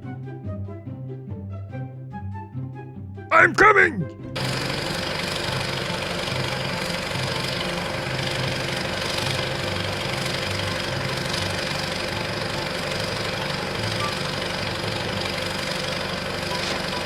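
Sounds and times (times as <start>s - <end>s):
vehicle engine idling: 4.4s - 17.0s.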